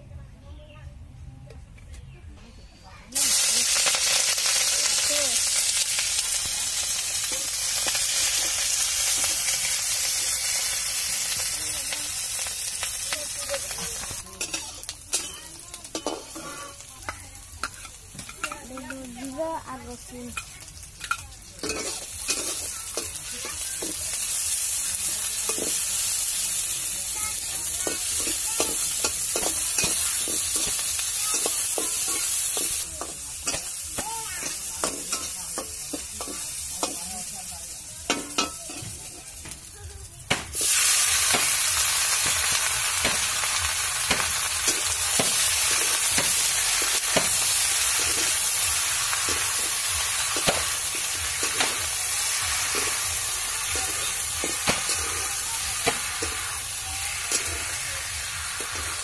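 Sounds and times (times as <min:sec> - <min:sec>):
food sizzling in hot oil: 0:03.1 - 0:59.0
metal spatula scraping a wok: 0:13.6 - 0:18.9, 0:20.4 - 0:24.7.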